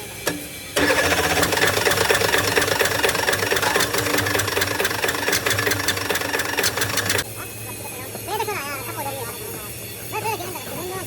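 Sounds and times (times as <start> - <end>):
diesel engine idling with knocking: 0.8 - 7.2.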